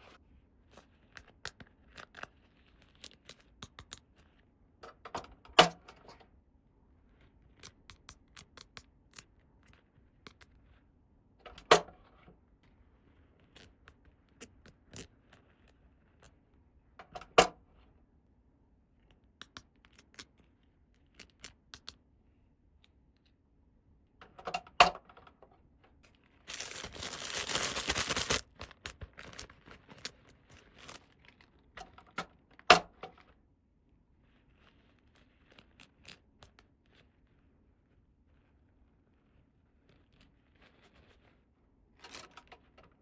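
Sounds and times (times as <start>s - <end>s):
packaging tearing: 26.5s - 31.0s.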